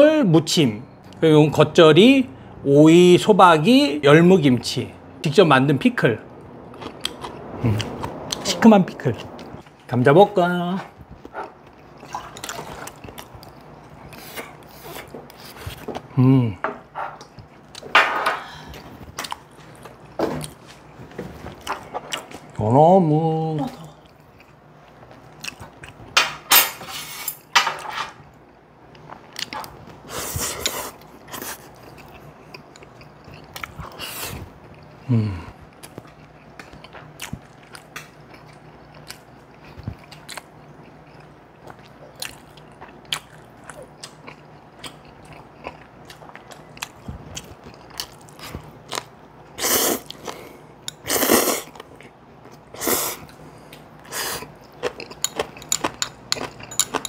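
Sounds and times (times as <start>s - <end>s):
people chewing crunchy food: 6.4s - 8.4s, 10.8s - 16.5s, 23.8s - 26.2s, 28.2s - 57.0s.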